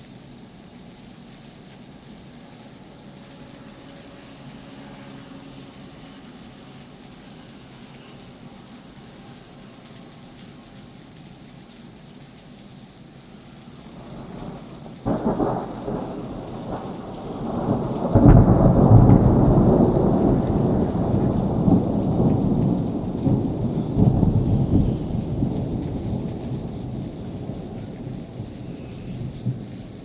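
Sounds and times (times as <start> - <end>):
thunder clap and rumble: 14.0 - 30.0.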